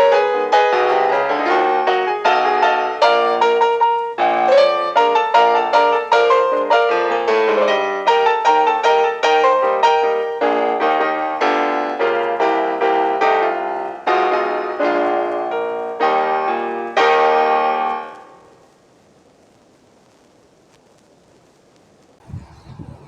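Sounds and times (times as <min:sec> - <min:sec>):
solo piano music: 0:00.0 - 0:18.4.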